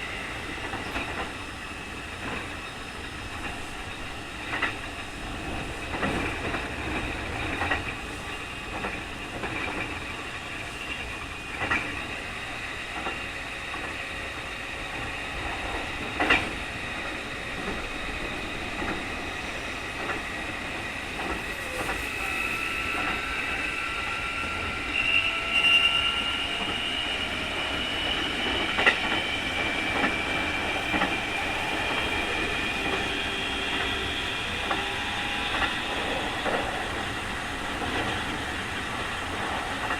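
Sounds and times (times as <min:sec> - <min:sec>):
train running rumble: 0:00.0 - 0:39.9
electric train motor whine: 0:15.0 - 0:39.1.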